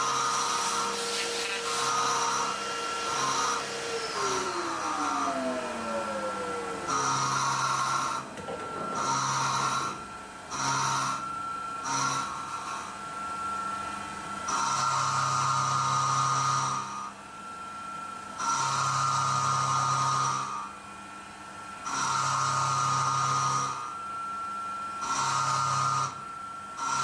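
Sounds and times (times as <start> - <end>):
end mill cutting iron: 0.0 - 12.9
milling machine spindle whine: 0.0 - 27.0.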